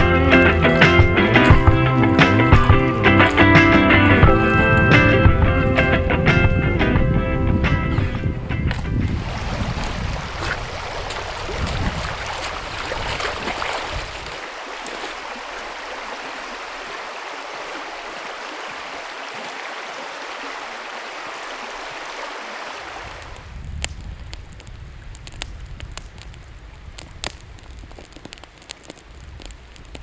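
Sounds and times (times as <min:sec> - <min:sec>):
river water rushing: 0:00.0 - 0:06.3, 0:09.0 - 0:23.4.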